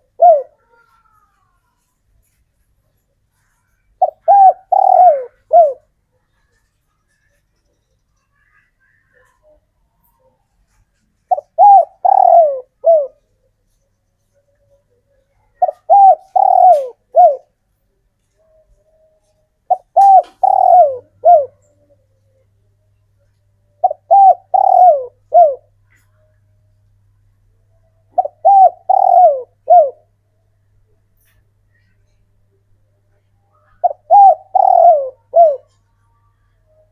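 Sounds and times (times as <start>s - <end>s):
dove cooing: 0.0s - 1.4s, 4.0s - 6.6s, 9.1s - 13.3s, 15.0s - 17.6s, 18.4s - 22.4s, 23.2s - 26.3s, 28.1s - 30.1s, 33.5s - 35.9s.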